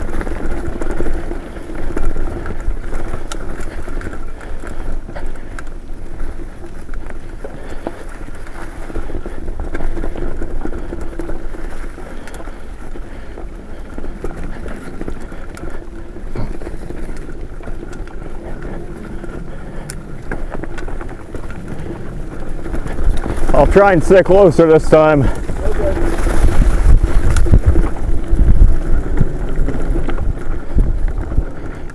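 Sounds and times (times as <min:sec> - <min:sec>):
bike clicks and rattles: 0:00.0 - 0:31.9
bike tyres rumbling on dirt: 0:00.0 - 0:31.9
wind on microphone: 0:25.0 - 0:31.9.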